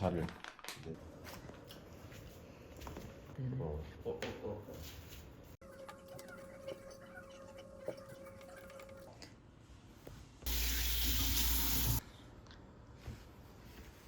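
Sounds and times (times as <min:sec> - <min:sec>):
tap water gushing into sink: 0:10.5 - 0:12.0.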